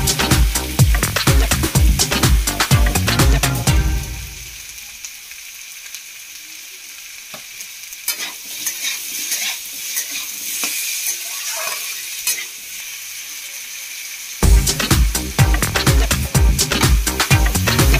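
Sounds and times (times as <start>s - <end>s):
vegetables sizzling in oil: 0.0s - 17.9s
metal spatula scraping: 8.1s - 12.6s.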